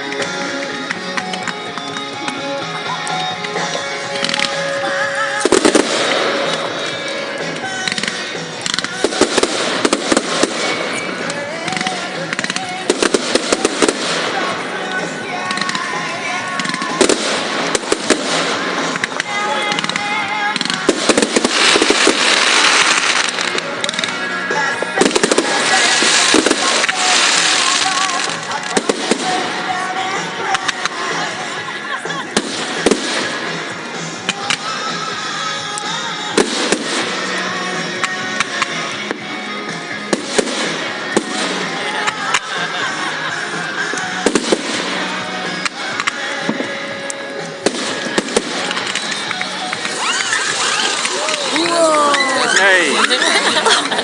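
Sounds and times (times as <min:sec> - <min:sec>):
fireworks crackling: 0:00.0 - 0:54.0
music playing: 0:00.0 - 0:54.0
fireworks bangs: 0:03.5 - 0:35.0, 0:35.8 - 0:39.3, 0:39.9 - 0:54.0.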